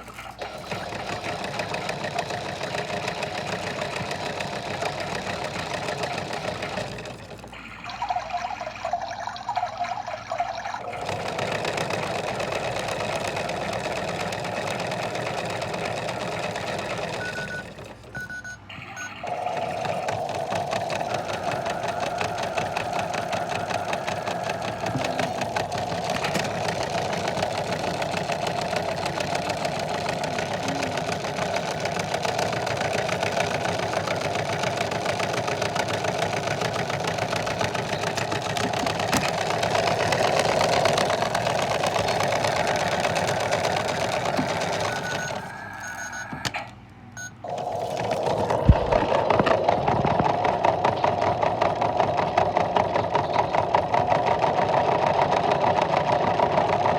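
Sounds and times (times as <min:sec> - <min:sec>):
washing machine whirring and ticking: 0:00.0 - 0:56.9
short electronic beeps: 0:18.2 - 0:19.2, 0:44.8 - 0:47.5.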